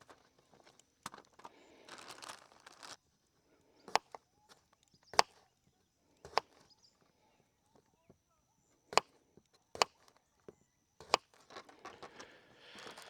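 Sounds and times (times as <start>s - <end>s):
rustling handling: 0.0s - 3.0s, 11.0s - 13.0s.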